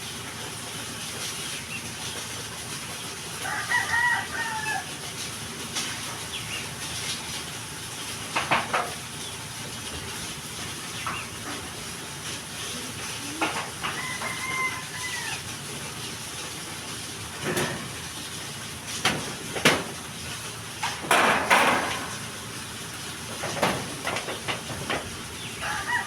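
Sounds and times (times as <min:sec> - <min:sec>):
rooster crowing: 0:03.4 - 0:05.0, 0:13.8 - 0:15.5, 0:25.6 - 0:26.0.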